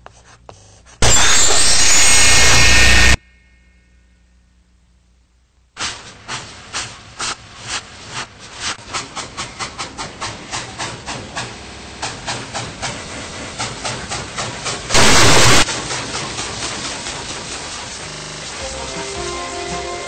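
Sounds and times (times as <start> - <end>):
train beats speeding up: 8.8 - 20.0.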